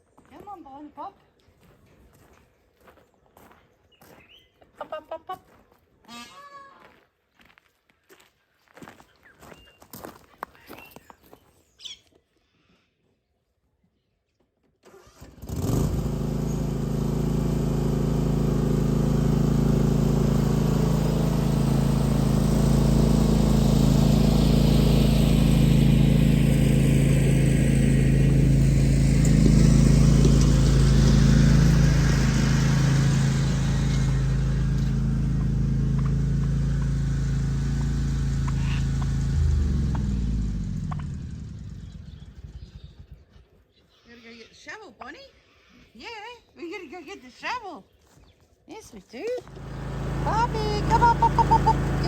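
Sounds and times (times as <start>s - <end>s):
engine running: 14.9s - 43.2s, 49.4s - 52.0s.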